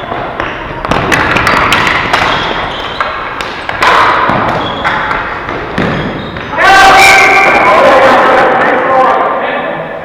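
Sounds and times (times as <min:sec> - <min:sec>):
hockey sticks knocking ball: 0:00.0 - 0:06.6
people shouting: 0:06.5 - 0:08.6.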